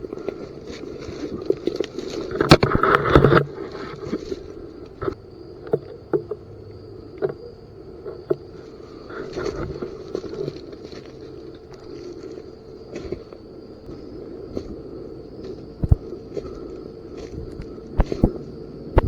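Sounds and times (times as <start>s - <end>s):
footsteps rustling through dry leaves: 0.0s - 2.4s, 8.6s - 18.6s
crashing through brush: 0.0s - 5.2s
twigs cracking: 0.0s - 6.3s, 7.1s - 19.0s.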